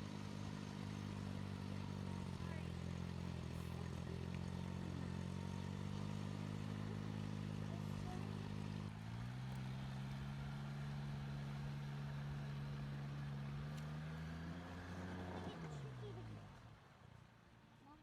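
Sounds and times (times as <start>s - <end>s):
boat engine running: 0.0s - 11.8s.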